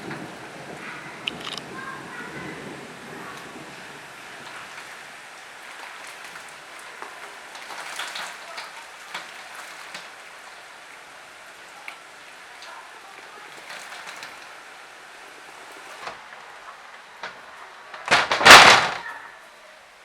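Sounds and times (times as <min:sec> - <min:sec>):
heavy rain falling: 0:00.0 - 0:20.0
sharp drops hitting a surface: 0:17.2 - 0:19.1.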